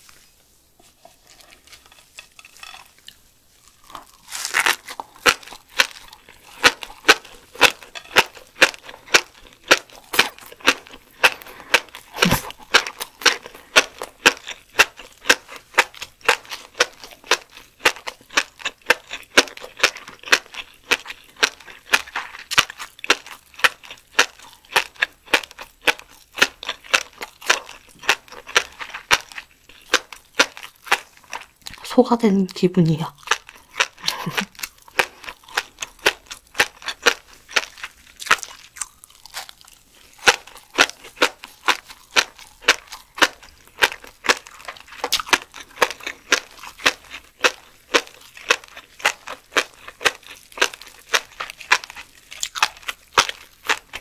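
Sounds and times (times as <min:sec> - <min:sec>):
sharp clicking chews: 0:33.2 - 0:54.0.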